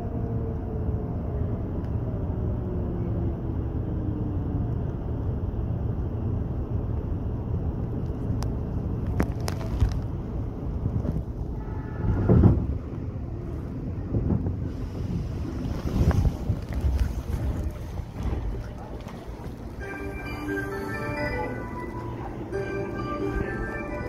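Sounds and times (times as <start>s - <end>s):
train wheels rumbling on rails: 7.7s - 24.0s.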